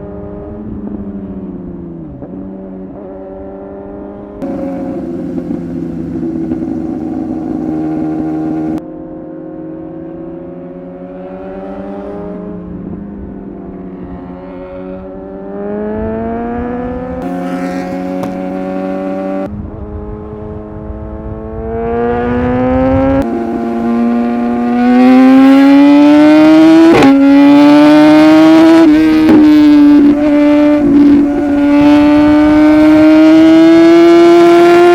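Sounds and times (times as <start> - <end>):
motorcycle engine accelerating: 3.1 - 8.8, 14.4 - 34.9
wind over microphone: 18.4 - 27.4, 28.7 - 34.7.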